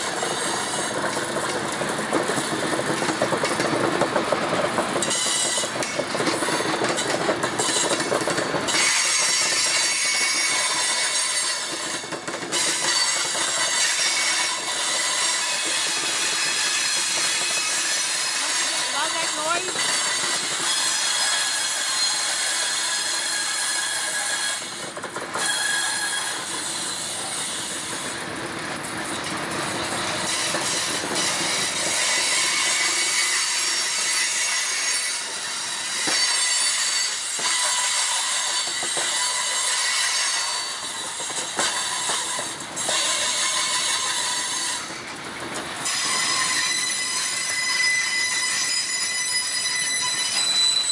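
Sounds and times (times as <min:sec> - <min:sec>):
steel wheels running on rails: 0:00.0 - 0:50.9
clicks over rail joints: 0:00.8 - 0:10.9
wheels squealing: 0:29.1 - 0:50.9.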